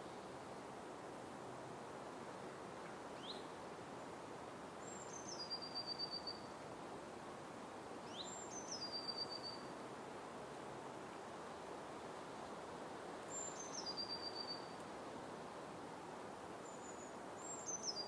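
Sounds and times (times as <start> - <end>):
forest ambience hiss: 0.0 - 18.0
songbird singing with trill: 4.8 - 6.5, 8.1 - 9.7, 13.3 - 14.8, 16.7 - 18.0.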